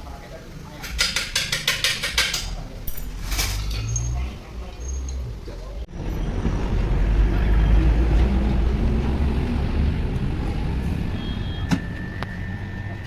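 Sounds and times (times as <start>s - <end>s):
low motor vehicle rumble: 2.6s - 13.0s.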